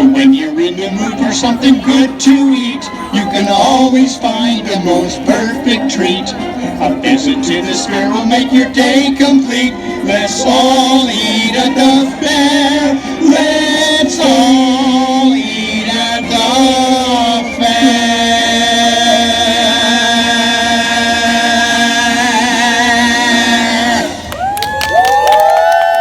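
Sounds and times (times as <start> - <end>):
voices singing in harmony: 0.0 - 24.5.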